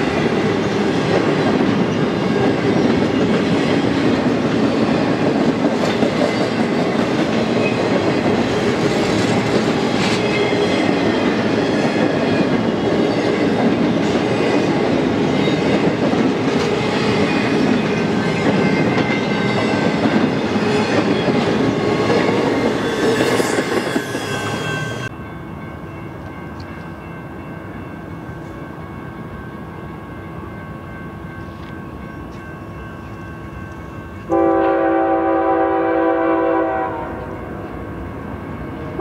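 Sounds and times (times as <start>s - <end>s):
freight train wheels clattering: 0.0s - 25.1s.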